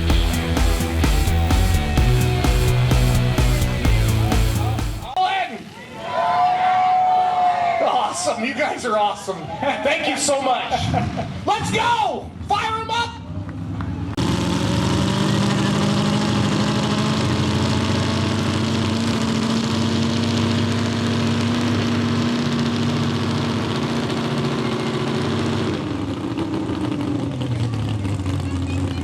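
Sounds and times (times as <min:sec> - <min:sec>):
tractor engines idling: 0:00.0 - 0:05.2, 0:15.0 - 0:29.0.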